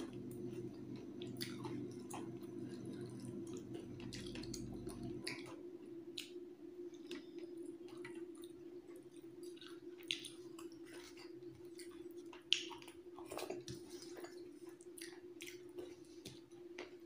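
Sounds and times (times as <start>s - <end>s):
low hum: 0.0s - 6.1s
person chewing: 0.0s - 17.0s.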